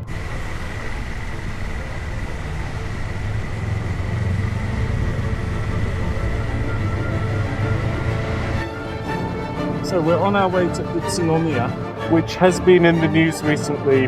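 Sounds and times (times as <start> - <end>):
motorcycle engine running: 0.0 - 8.6
steady high whine: 0.0 - 13.9.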